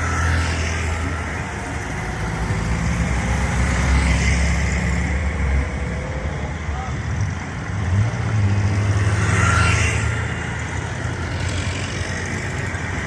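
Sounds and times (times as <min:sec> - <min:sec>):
road noise of passing car: 0:00.0 - 0:13.0.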